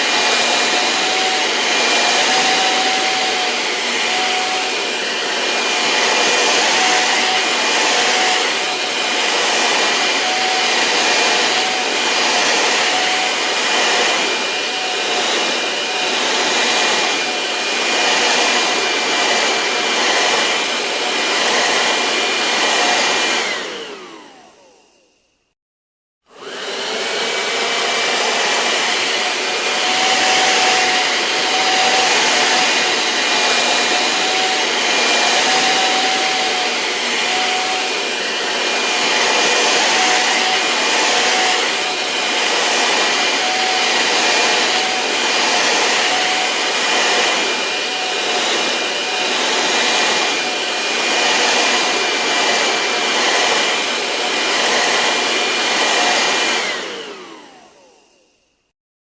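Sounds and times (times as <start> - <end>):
vacuum cleaner running: 0.0 - 25.6, 26.2 - 58.7.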